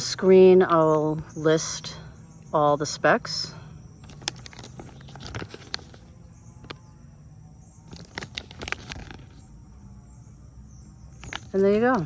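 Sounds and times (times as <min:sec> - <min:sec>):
paper manual rustling and clicking: 0:04.0 - 0:06.8, 0:07.9 - 0:09.5, 0:11.2 - 0:12.0.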